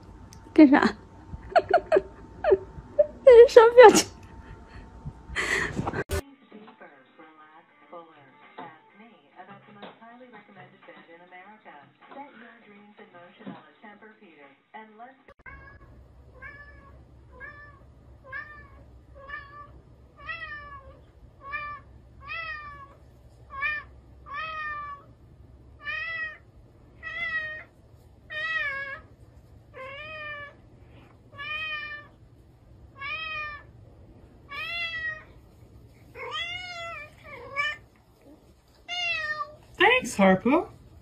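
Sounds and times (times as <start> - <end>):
cat meowing: 15.5 - 25.1, 25.8 - 26.4, 27.0 - 27.7, 29.7 - 30.6, 31.4 - 32.1, 33.0 - 33.7, 34.5 - 35.4, 36.1 - 37.9, 38.8 - 39.6.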